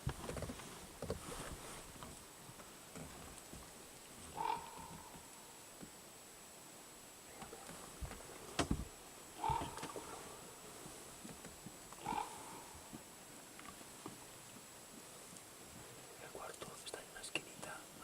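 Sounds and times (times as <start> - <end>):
short animal calls: 4.3 - 5.5, 9.4 - 10.6, 12.0 - 12.9.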